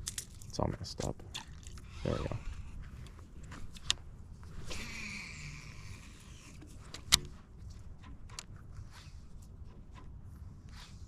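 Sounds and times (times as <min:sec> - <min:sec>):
fishing reel spool whirring: 0:04.6 - 0:06.8.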